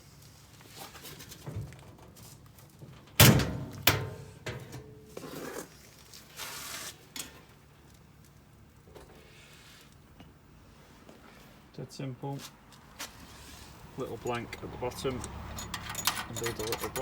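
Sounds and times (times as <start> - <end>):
brief scrape: 6.3 - 7.0.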